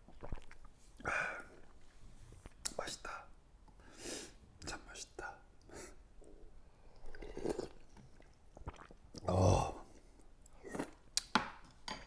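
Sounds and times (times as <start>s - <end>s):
man chewing food: 0.0s - 0.7s, 7.0s - 9.3s
short low vocal sound: 9.2s - 9.9s.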